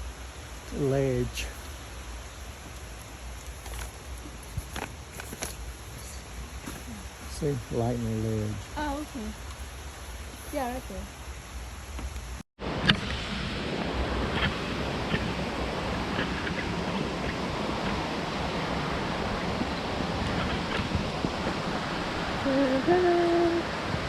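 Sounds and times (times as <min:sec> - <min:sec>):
waterfall rushing: 0:00.0 - 0:11.2, 0:12.3 - 0:24.0.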